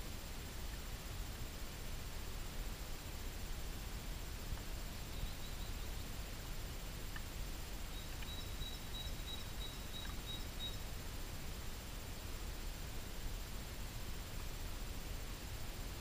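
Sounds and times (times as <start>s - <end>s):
background hiss: 0.0s - 16.0s
high bird chirps: 7.9s - 10.8s.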